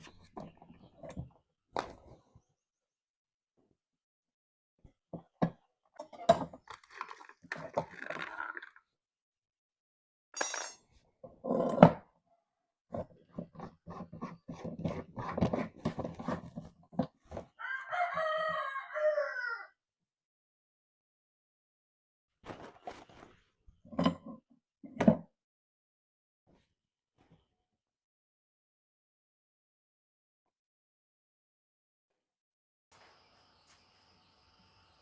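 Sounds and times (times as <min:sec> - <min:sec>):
rooster crowing: 0:17.6 - 0:19.8.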